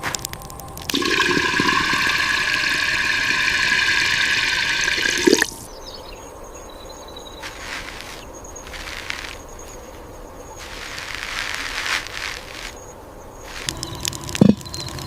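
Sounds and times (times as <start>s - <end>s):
water rushing: 0.0s - 5.7s, 13.6s - 15.0s.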